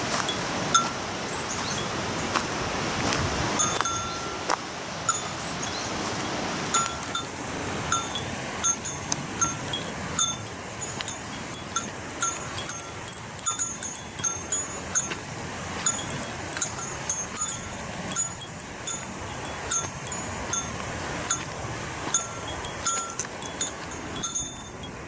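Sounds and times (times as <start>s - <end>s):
waterfall rushing: 0.0s - 25.0s
high chirping calls: 1.2s - 1.9s, 5.1s - 6.1s.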